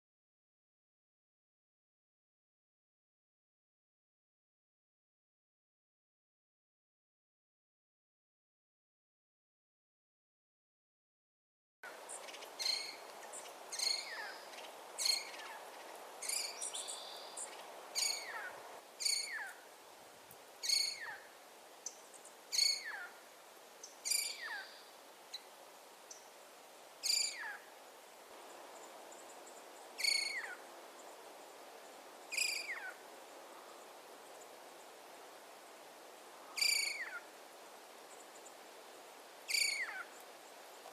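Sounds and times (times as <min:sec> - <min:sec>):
faint hiss: 0:11.9 - 0:40.9.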